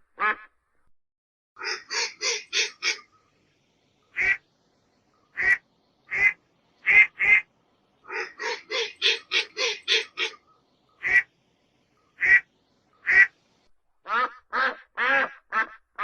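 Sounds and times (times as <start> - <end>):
duck quacking: 1.6 - 3.1, 4.2 - 4.4, 5.4 - 7.5, 8.1 - 10.4, 11.0 - 11.3, 12.2 - 13.4, 14.1 - 16.0.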